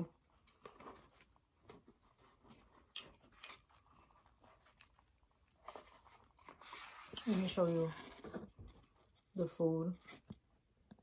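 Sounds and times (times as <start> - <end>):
faint chewing: 0.0 - 7.3.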